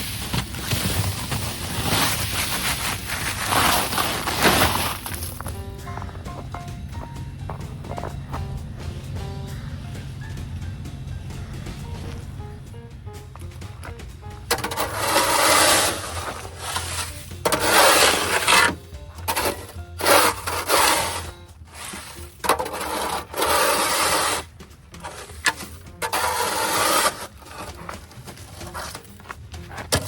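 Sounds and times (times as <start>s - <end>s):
rough scraping strokes: 0.0s - 5.6s, 13.4s - 29.3s
low hum: 1.0s - 17.5s.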